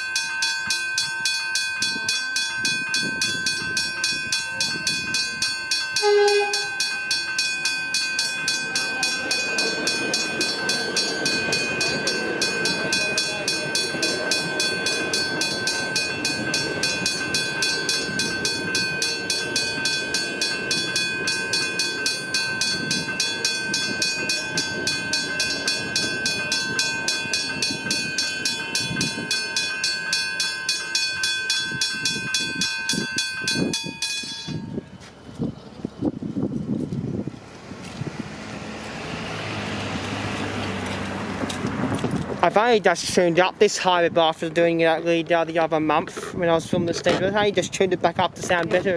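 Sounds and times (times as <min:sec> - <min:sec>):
level crossing bells ringing: 0:00.0 - 0:35.1
train wheels rumbling on rails: 0:00.0 - 0:48.9
two-tone train horn: 0:06.0 - 0:06.9.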